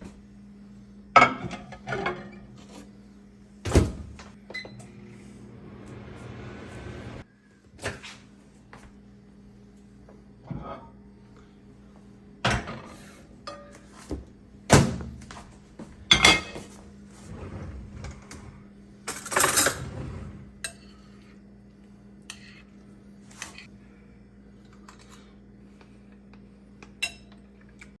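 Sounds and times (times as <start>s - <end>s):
faint steady hum: 0.0s - 28.0s
pots and dishes clattering: 1.2s - 2.4s, 16.1s - 16.7s.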